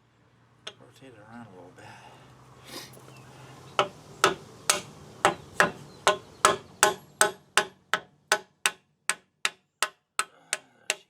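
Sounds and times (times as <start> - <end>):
hammer tapping metal: 3.8 - 11.0.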